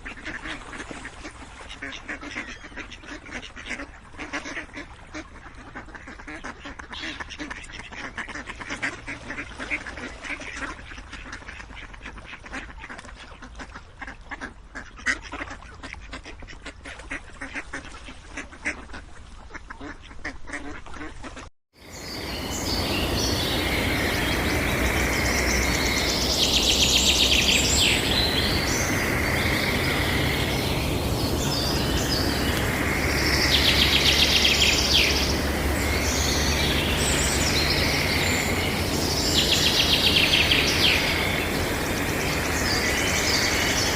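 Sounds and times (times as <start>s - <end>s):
ducks quacking: 0.0s - 43.9s
birds calling with rapid trills: 21.8s - 43.9s
steady background noise: 21.9s - 43.9s.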